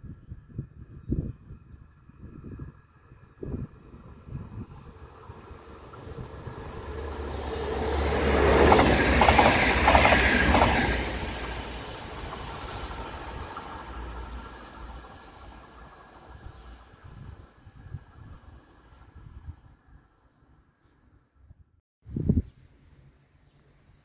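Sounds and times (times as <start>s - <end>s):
train passing: 2.7s - 20.8s.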